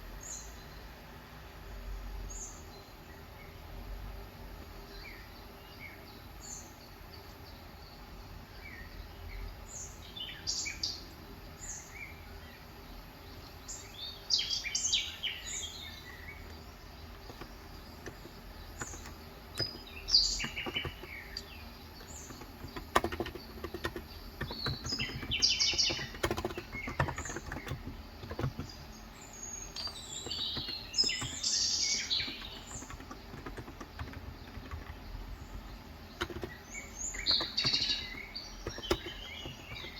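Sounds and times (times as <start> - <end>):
small birds chirping: 0.1 - 39.9
keyboard keystrokes: 16.4 - 29.0, 29.6 - 39.9.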